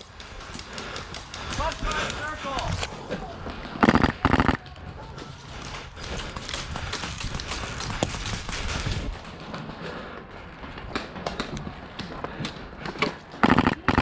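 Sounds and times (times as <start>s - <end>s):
airsoft guns firing: 3.8s - 4.6s, 13.4s - 14.0s.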